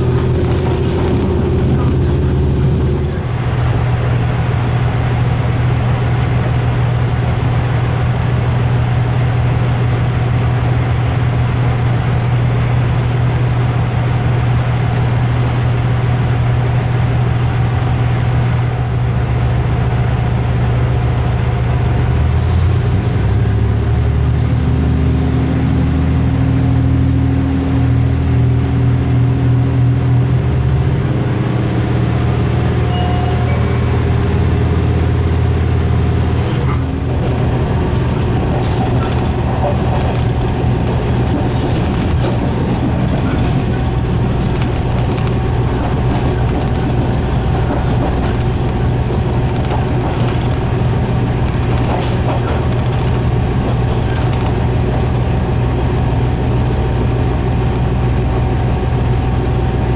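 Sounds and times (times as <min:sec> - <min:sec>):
diesel railcar engine drone: 0:00.0 - 0:59.9
higher steady tone: 0:32.7 - 0:36.0.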